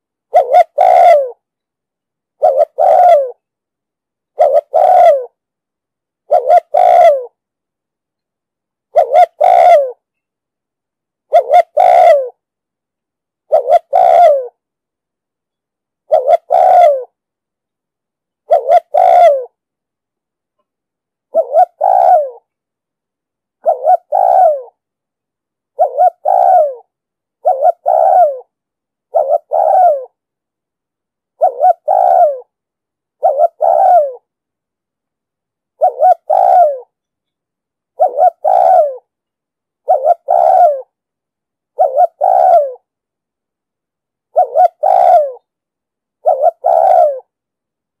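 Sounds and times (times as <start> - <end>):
dove cooing: 0.3 - 1.4, 2.4 - 3.4, 4.3 - 5.4, 6.3 - 7.4, 8.9 - 10.0, 11.3 - 12.4, 13.5 - 14.6, 16.1 - 17.2, 18.4 - 19.6, 21.3 - 22.5, 23.6 - 24.8, 25.8 - 28.5, 29.1 - 30.2, 31.4 - 32.5, 33.2 - 34.3, 35.8 - 37.0, 38.0 - 39.1, 39.8 - 41.0, 41.8 - 42.9, 44.3 - 45.5, 46.2 - 47.3.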